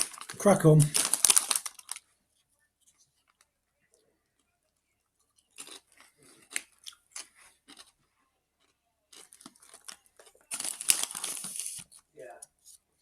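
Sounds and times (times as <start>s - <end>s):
crisps being chewed: 0.0s - 2.1s, 4.3s - 12.1s.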